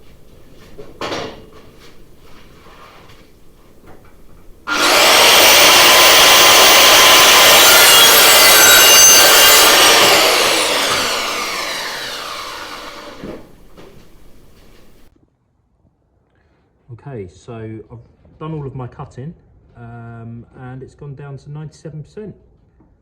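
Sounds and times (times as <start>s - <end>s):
power saw cutting wood: 4.6s - 15.1s.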